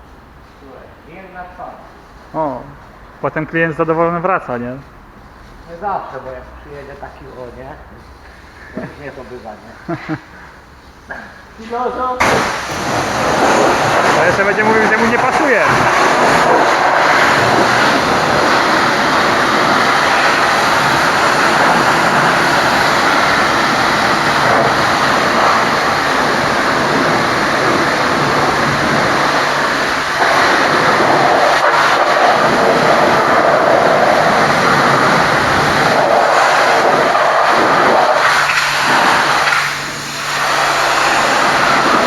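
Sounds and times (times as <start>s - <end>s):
pressure washer spraying water: 12.2s - 42.0s.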